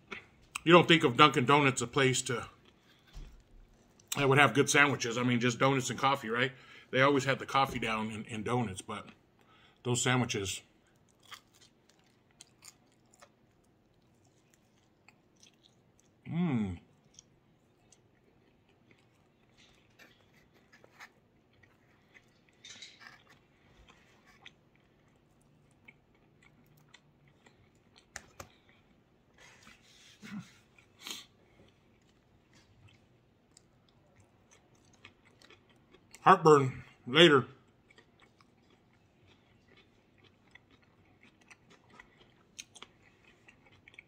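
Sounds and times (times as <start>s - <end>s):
person chewing and biting: 10.9s - 16.2s, 16.9s - 29.0s, 30.6s - 36.2s, 37.7s - 44.0s.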